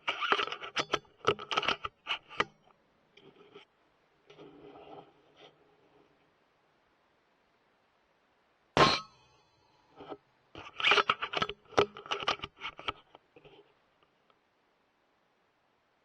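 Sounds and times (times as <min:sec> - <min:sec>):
metallic ring: 0:08.8 - 0:09.9.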